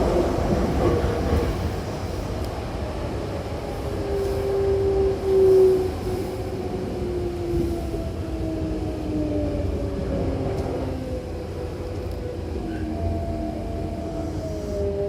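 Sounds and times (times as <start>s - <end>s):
train running rumble: 0.0s - 15.0s
train whining tone: 3.1s - 15.0s.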